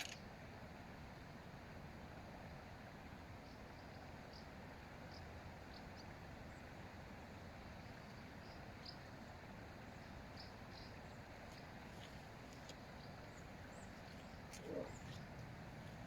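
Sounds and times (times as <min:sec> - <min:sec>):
outdoor background hiss: 0:00.0 - 0:16.0
small birds chirping: 0:09.9 - 0:16.0.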